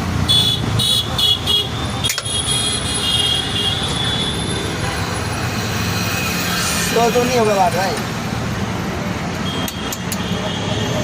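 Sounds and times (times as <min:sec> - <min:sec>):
low traffic rumble: 0:00.0 - 0:11.0
vehicle horn beeping: 0:00.3 - 0:04.5.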